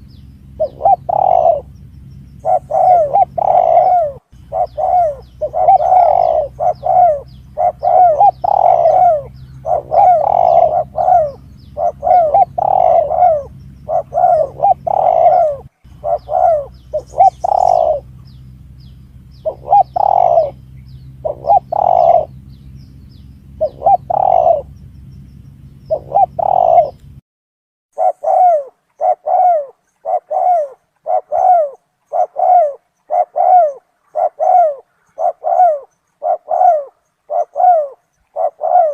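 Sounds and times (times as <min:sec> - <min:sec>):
dove cooing: 0:00.0 - 0:24.9, 0:25.6 - 0:27.1, 0:28.0 - 0:38.9
low steady hum: 0:00.0 - 0:27.2.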